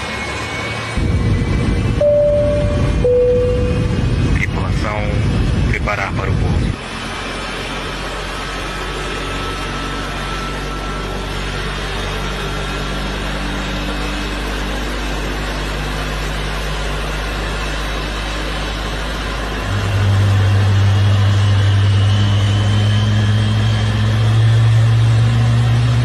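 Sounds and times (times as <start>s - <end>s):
engine humming: 0.0s - 5.7s.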